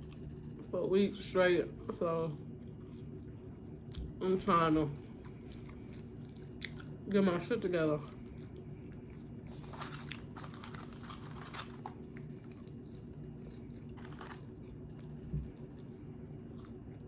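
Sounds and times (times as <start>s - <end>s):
chewing and mouth sounds: 0.0s - 0.7s, 1.8s - 4.2s, 4.9s - 7.1s, 8.0s - 17.0s.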